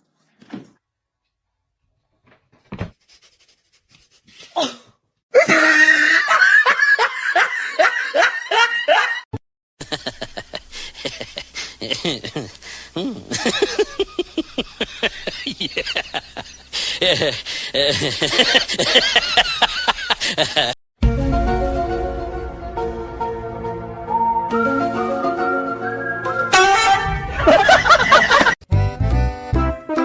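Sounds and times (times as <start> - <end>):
people laughing hard: 5.4 - 12.7, 13.3 - 20.8, 27.3 - 28.6.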